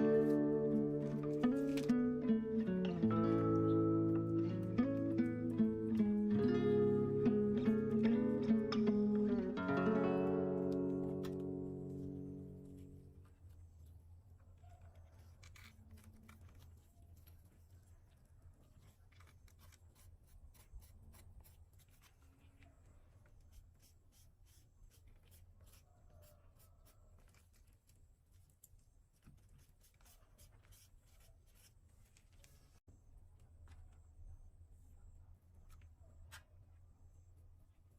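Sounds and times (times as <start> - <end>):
low steady hum: 0.0 - 14.8.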